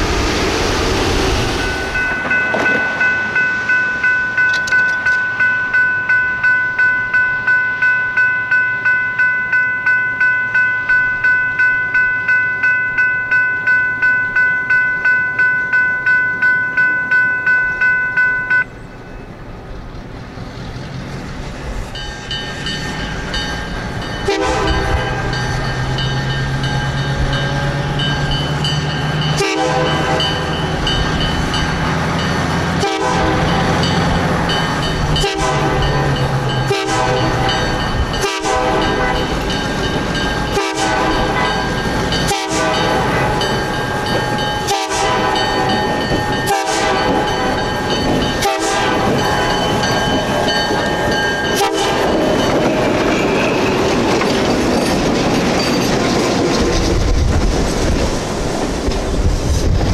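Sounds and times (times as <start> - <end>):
wheels clicking over rail joints: 19.6 - 59.9.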